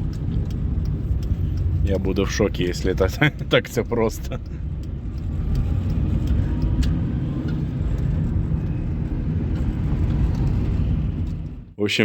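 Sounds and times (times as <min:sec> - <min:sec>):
faint light ticks: 0:00.0 - 0:08.8
car engine rumbling: 0:00.0 - 0:11.8.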